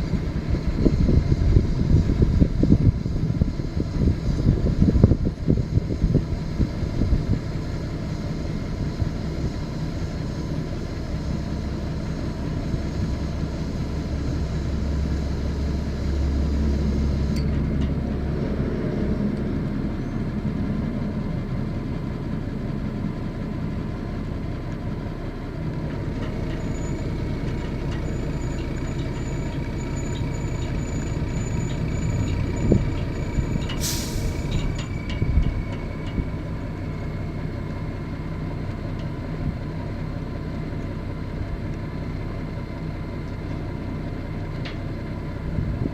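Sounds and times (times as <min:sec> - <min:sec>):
truck engine running: 0:00.0 - 0:45.9
short sharp hiss: 0:33.8 - 0:34.4.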